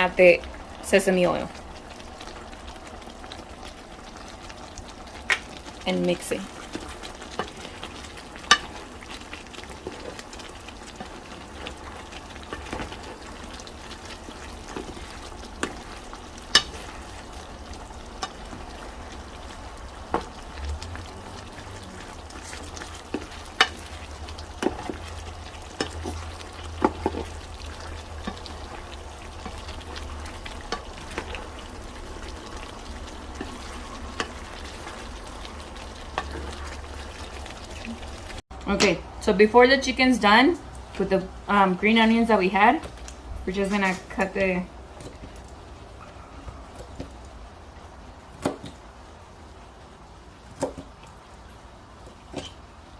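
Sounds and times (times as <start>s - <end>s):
chicken sizzling in sauce: 0.0s - 38.4s.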